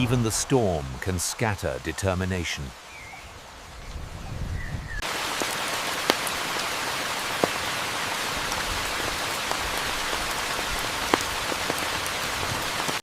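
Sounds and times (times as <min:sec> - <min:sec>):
rain falling steadily: 0:00.0 - 0:13.0
single raindrops striking close: 0:05.0 - 0:13.0.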